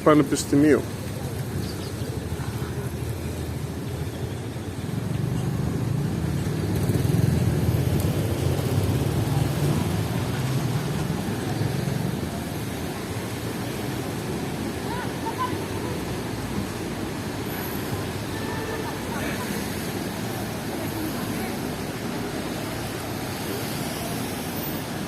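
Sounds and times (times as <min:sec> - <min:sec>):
vehicle engine rumble passing: 0:02.2 - 0:25.0.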